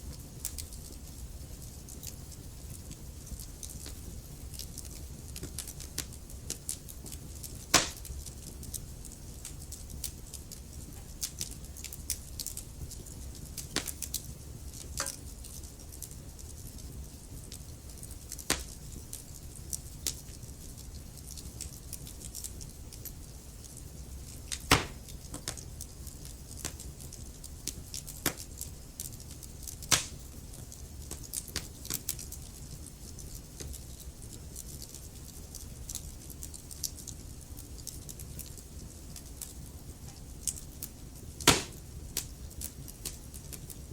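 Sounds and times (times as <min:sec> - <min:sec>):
wood fire crackling: 0:00.0 - 0:43.9
sharp pops of fire: 0:02.0 - 0:15.8, 0:17.4 - 0:19.2, 0:23.7 - 0:25.7, 0:26.5 - 0:32.5, 0:41.4 - 0:43.8.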